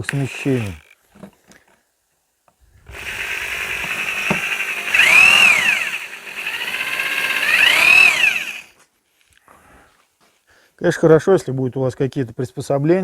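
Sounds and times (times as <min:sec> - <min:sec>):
rotary hammer drilling into brick: 0:00.0 - 0:00.9, 0:02.8 - 0:08.7.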